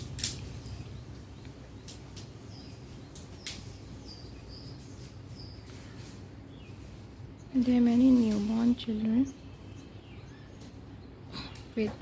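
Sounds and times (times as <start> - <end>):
sharp clicks or snaps: 0.0 - 0.6
birds chirping: 0.0 - 12.0.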